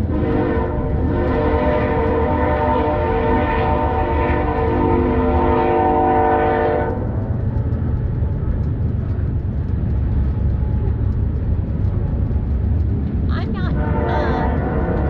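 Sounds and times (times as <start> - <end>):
low rumble: 0.0 - 15.0
train horn chord: 0.1 - 7.1, 13.7 - 15.0.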